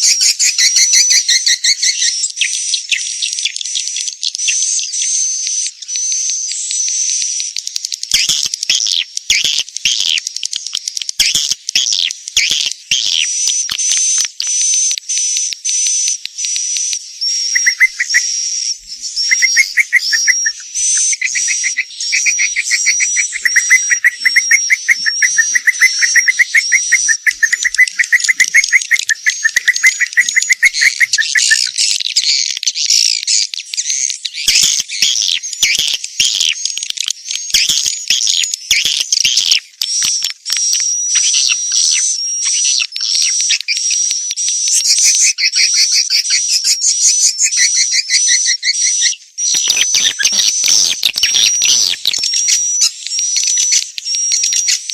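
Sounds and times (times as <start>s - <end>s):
swiftlets twittering chorus: 7.4s - 32.5s, 33.8s - 54.9s.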